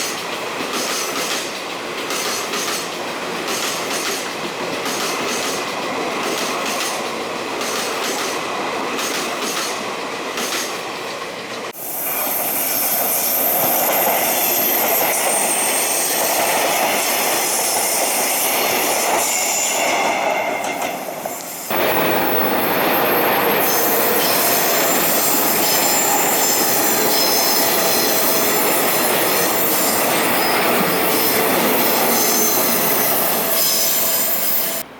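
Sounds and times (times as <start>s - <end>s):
train wheels knocking on rail joints: 0.0s - 10.8s
rumble of passing train cars: 0.0s - 34.9s
high wheel squeal: 11.8s - 34.8s.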